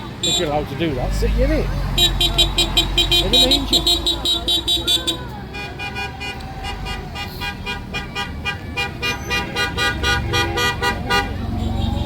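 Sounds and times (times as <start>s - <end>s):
vehicle horns beeping: 0.0s - 0.7s, 1.9s - 12.0s
tractor and lorry engines: 0.0s - 12.0s.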